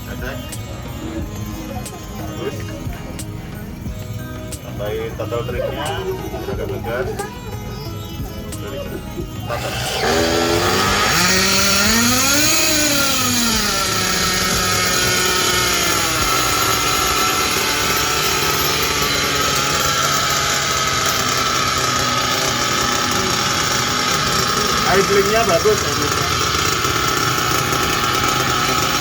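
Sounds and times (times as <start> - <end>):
nitro engine revving and idling: 0.0 - 29.0.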